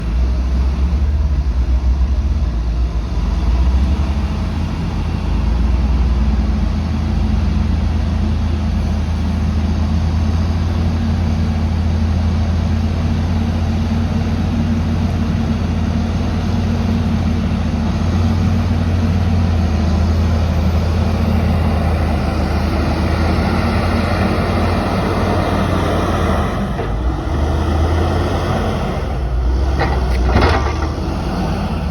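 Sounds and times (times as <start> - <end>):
diesel engine under heavy load: 0.0 - 31.9.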